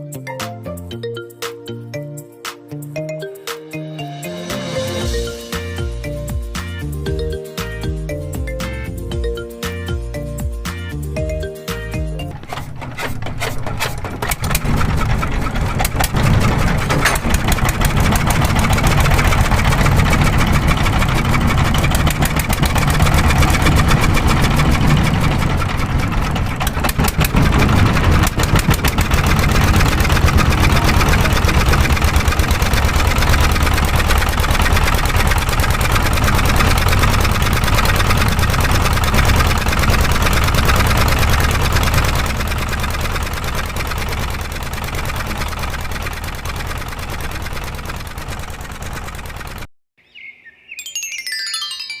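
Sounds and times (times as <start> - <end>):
small engine running: 11.6 - 49.7.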